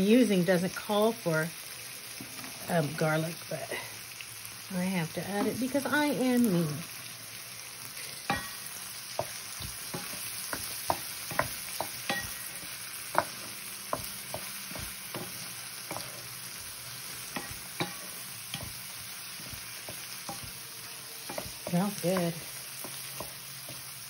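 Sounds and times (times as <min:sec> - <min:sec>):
food sizzling in a skillet: 0:00.0 - 0:24.0
wooden spoon stirring: 0:09.2 - 0:24.0.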